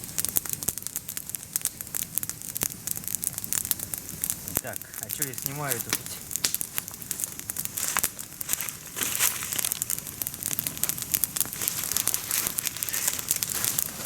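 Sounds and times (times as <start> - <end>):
twig campfire crackling: 0.0 - 14.0
dry leaves rustling: 4.9 - 14.0.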